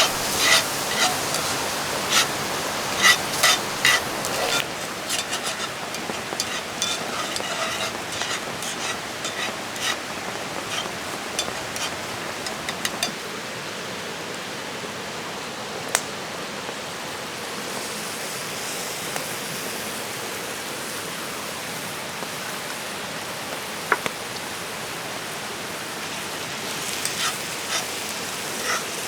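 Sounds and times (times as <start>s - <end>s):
utensil clicking in a pan: 0.0s - 13.2s, 27.0s - 28.0s, 28.6s - 29.0s
rain hissing: 0.0s - 13.7s, 25.7s - 29.0s
river flowing: 0.0s - 13.8s.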